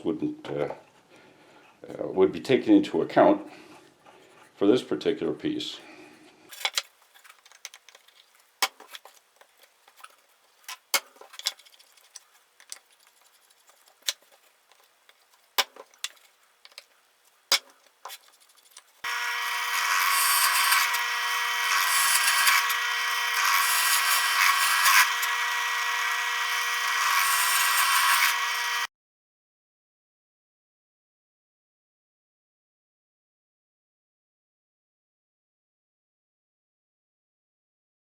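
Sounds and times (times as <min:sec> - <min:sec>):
power drill whining: 0:19.0 - 0:28.9.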